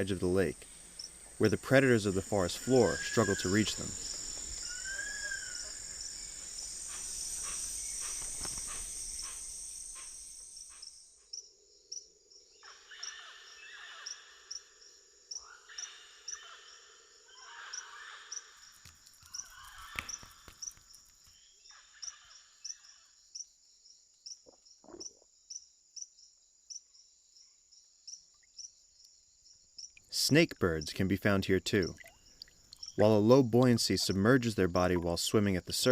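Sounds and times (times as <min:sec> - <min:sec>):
steady high insect whine: 0:00.0 - 0:23.6
insect chorus: 0:00.0 - 0:35.9
regular high chirp: 0:31.8 - 0:33.0.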